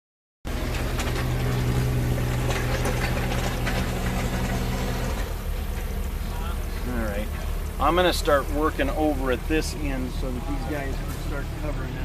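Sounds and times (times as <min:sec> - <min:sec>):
clanks and knocks: 0:00.5 - 0:07.8
engine running steadily: 0:00.5 - 0:12.0.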